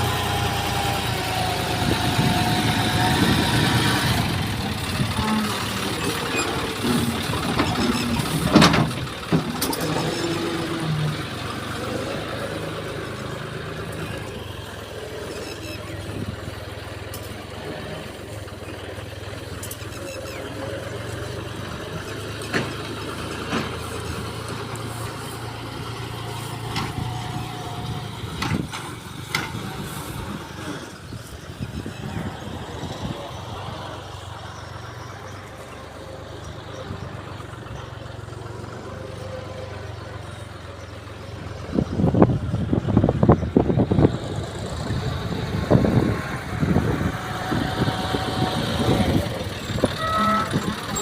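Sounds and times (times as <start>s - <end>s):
engine drone: 0.0s - 51.0s
sharp clicks and knocks: 28.4s - 29.7s.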